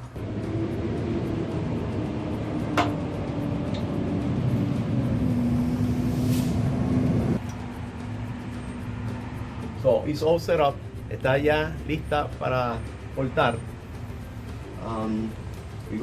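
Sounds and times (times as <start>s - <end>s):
electric motor humming: 0.0s - 6.2s.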